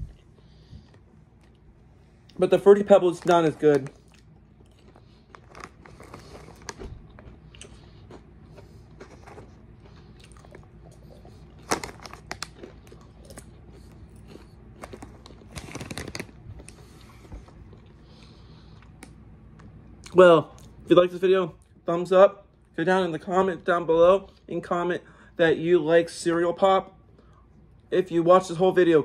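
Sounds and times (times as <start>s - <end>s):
popcorn being chewed crunchily: 0.0s - 20.9s.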